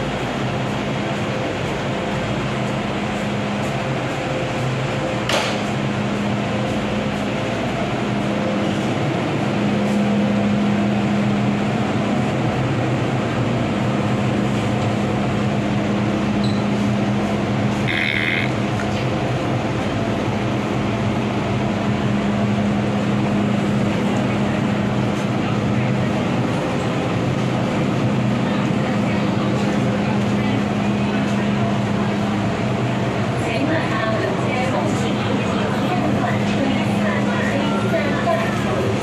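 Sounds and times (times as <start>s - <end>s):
train carriage hum and rumble: 0.0s - 39.0s.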